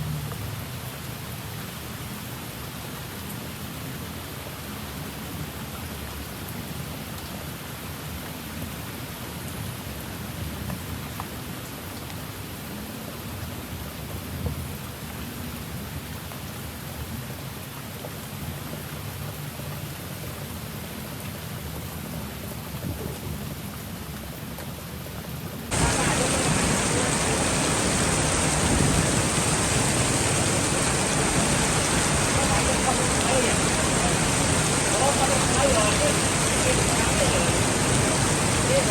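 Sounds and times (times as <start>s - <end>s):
heavy rain pouring: 25.2s - 38.9s.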